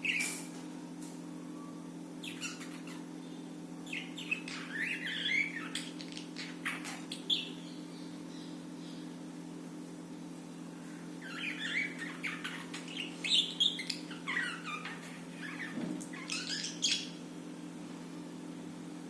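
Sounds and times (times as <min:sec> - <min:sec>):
budgerigars chirping and warbling: 0:00.0 - 0:00.4, 0:02.2 - 0:09.1, 0:11.2 - 0:17.2
steady low hum: 0:00.0 - 0:19.0.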